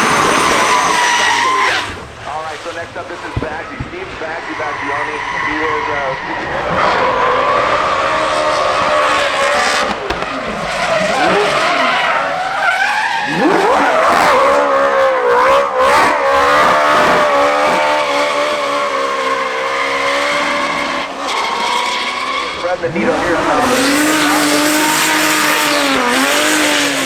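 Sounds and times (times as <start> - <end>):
tyres squealing: 0.0 - 2.0, 4.2 - 9.0, 15.9 - 27.0
car engine revving hard: 0.0 - 2.2, 4.4 - 27.0.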